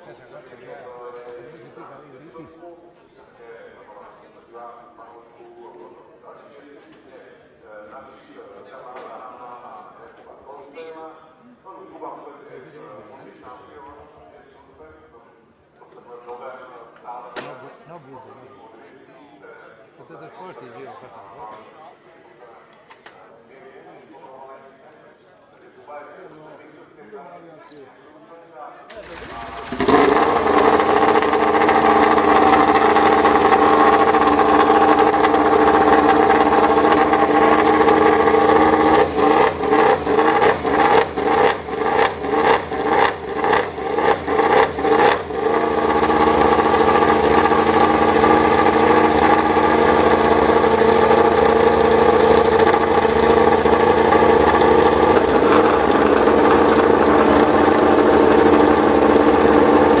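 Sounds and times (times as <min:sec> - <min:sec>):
engine revving throttle blips: 0:28.9 - 1:00.0
racing motorcycle engine idling: 0:29.1 - 1:00.0.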